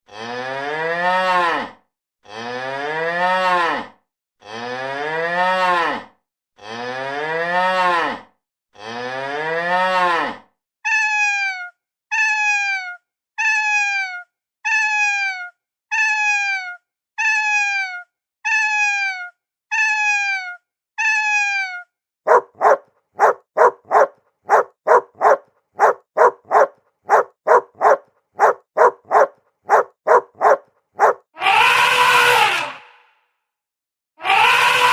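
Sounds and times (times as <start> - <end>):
cow mooing: 0.1 - 1.7
dog barking: 22.3 - 31.2.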